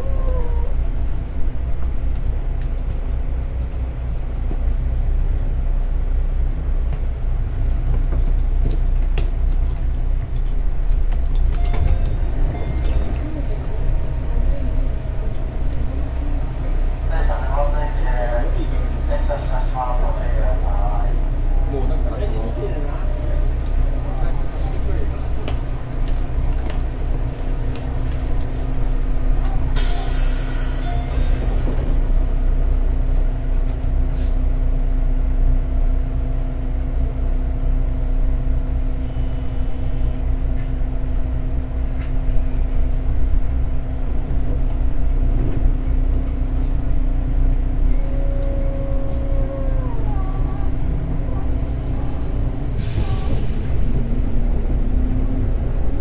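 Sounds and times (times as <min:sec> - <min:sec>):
train wheels rumbling on rail: 0:00.0 - 0:56.0
hiss of air: 0:29.8 - 0:32.5.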